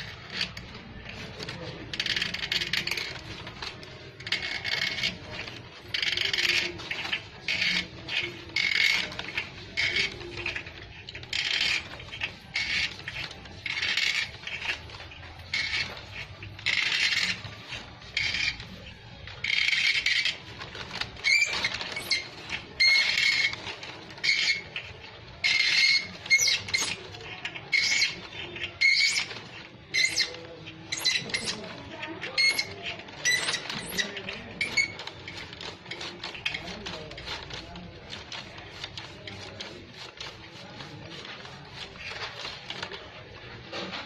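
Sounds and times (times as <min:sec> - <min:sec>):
hand tool scraping on metal: 0:00.0 - 0:43.0.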